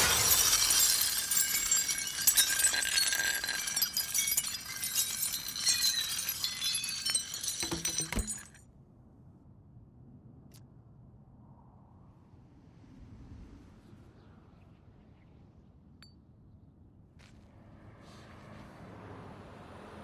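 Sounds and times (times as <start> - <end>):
glass shards tinkling: 0.0 - 8.6
glass smashing on the road: 0.0 - 8.6.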